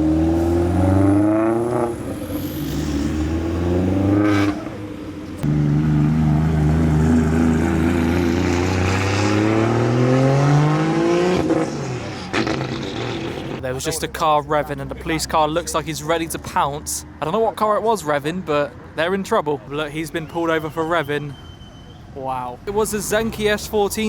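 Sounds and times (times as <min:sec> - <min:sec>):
car engine revving: 0:00.0 - 0:14.2.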